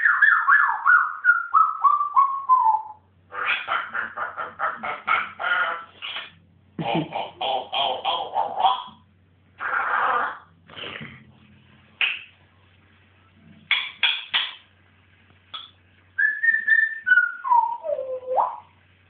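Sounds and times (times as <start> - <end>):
parrot whistle: 0.0 - 6.3, 15.6 - 18.7
parrot squawking and calling: 0.0 - 9.0, 9.6 - 10.6, 15.5 - 18.7.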